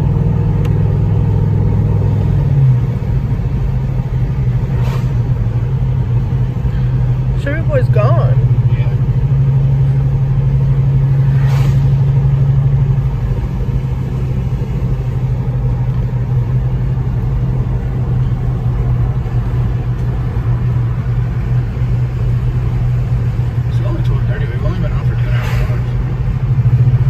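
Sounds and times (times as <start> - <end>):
engine and road noise in cabin: 0.0 - 27.0.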